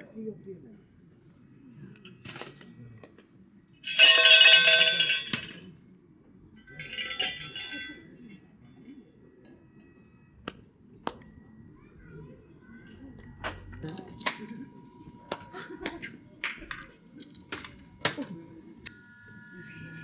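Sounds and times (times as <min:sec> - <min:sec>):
shrine bell jangling: 0:03.8 - 0:05.6, 0:06.7 - 0:08.0.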